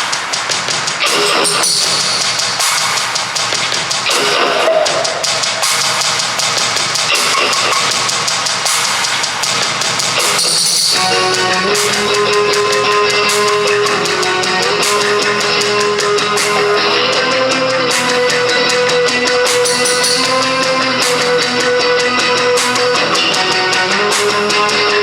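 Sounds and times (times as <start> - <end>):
drum kit: 0.0 - 25.0
electric guitar sustained notes: 10.2 - 25.0.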